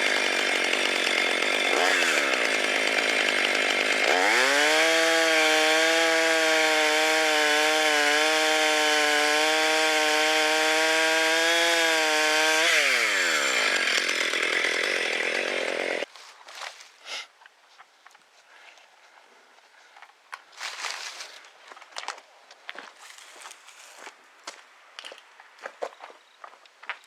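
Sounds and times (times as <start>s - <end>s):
chainsaw cutting wood: 0.0s - 16.1s.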